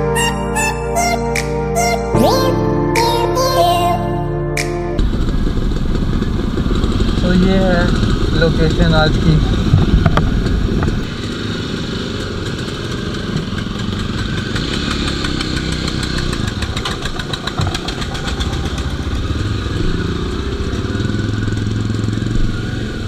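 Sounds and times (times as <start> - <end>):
motorcycle engines idling: 5.0 - 23.0.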